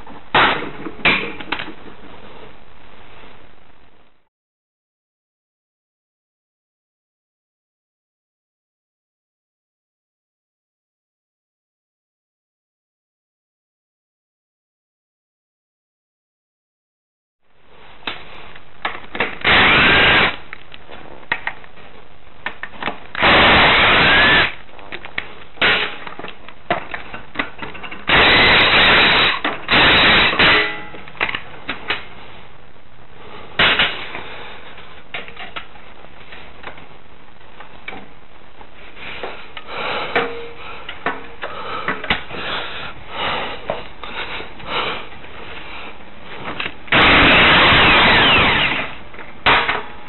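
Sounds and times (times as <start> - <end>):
power tool bursts: 19.4 - 20.4, 23.2 - 24.6, 28.1 - 30.7, 46.9 - 49.8
tools and parts clinking: 25.1 - 28.1.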